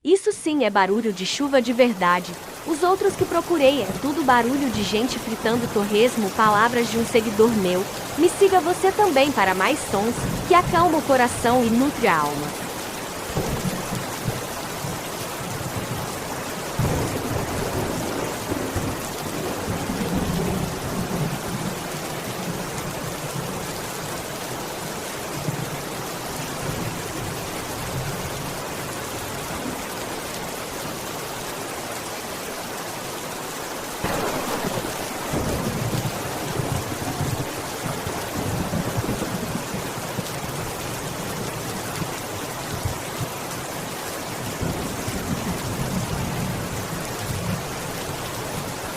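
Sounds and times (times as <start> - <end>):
heavy rain falling: 0.5 - 48.9
thunder rumbling: 2.4 - 23.7, 34.0 - 40.2.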